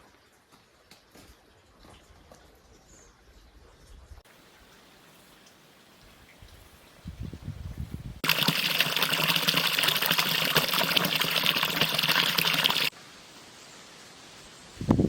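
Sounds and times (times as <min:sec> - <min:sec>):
water pouring: 0:08.2 - 0:12.9.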